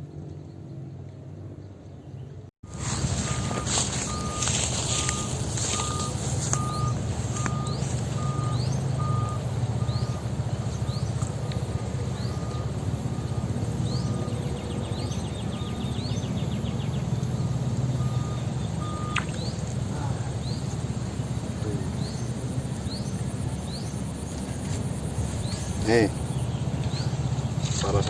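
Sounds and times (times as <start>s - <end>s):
low steady rumble: 0.0s - 27.8s
short rising chirps: 2.7s - 10.2s, 18.0s - 19.6s
steady repeating beep: 2.7s - 10.2s, 18.0s - 19.5s.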